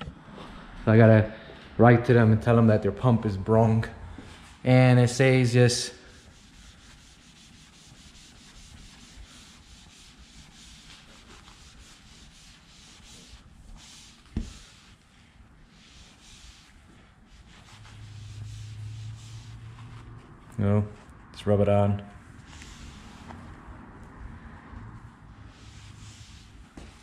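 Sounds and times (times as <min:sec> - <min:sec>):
sponge scrubbing plastic: 0:05.8 - 0:20.4, 0:25.4 - 0:27.0.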